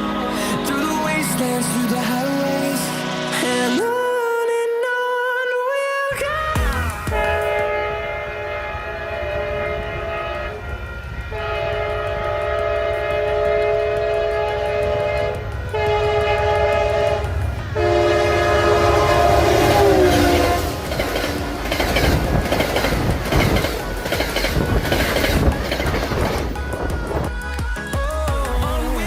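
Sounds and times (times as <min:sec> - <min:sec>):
moving train rumble: 0:06.2 - 0:29.0
train horn blasts: 0:07.0 - 0:26.3.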